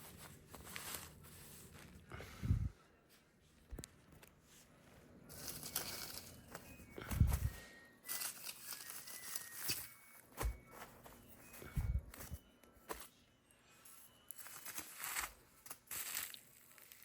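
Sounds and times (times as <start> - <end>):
packaging crinkling: 14.3 - 17.0.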